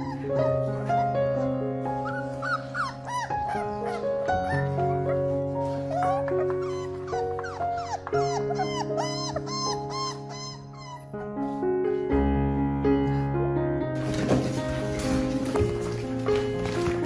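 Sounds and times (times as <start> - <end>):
puppy whimpering: 0.0 - 11.2
piano music: 0.0 - 17.0.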